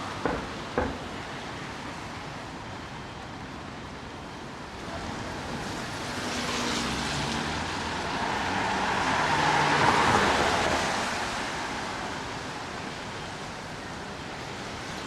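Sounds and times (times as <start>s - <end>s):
rain: 0.0s - 15.0s.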